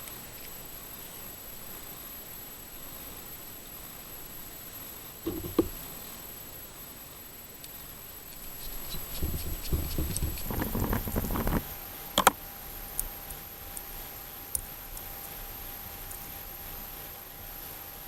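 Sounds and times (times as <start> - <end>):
rustling and scraping of parts: 5.3 - 5.8, 8.4 - 12.4.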